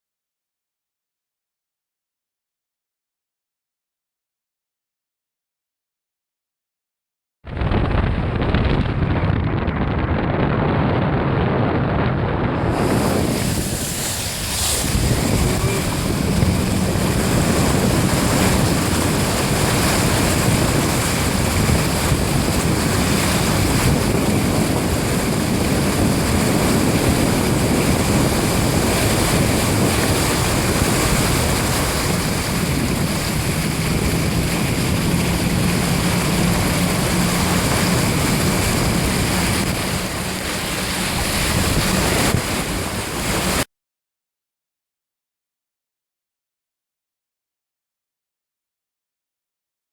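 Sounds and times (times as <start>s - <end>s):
tyres spraying water: 12.6s - 43.6s.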